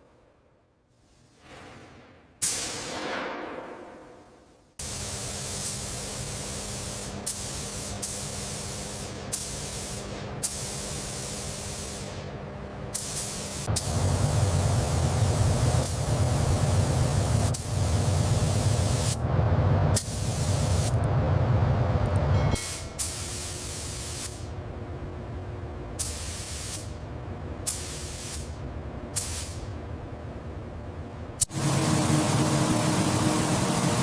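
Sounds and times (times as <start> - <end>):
loud spraying hiss: 4.8 - 12.2, 13.0 - 19.2, 20.0 - 20.9, 22.6 - 24.5, 26.0 - 29.8
short spray bursts: 4.8 - 12.3, 12.9 - 19.2, 20.0 - 20.9, 22.6 - 24.5, 26.0 - 27.0, 27.6 - 28.6, 29.2 - 29.8
low rumble: 13.8 - 22.6.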